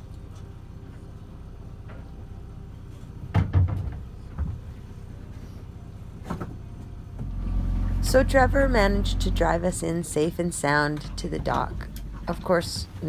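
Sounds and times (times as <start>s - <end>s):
knocks and thumps: 3.3s - 4.7s
boat engine running low: 6.6s - 13.0s.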